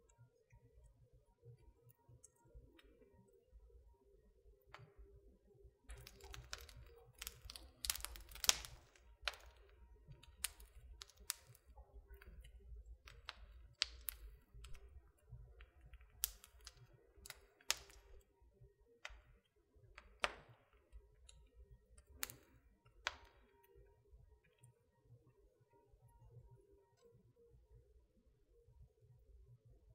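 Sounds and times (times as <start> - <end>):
wood fire crackling: 5.9 - 18.4, 19.0 - 23.9.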